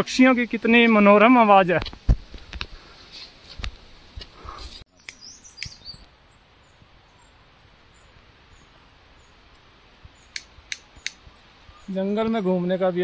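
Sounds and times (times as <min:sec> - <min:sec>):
birds chirping: 0:04.4 - 0:13.0
sharp clicks: 0:10.3 - 0:11.2.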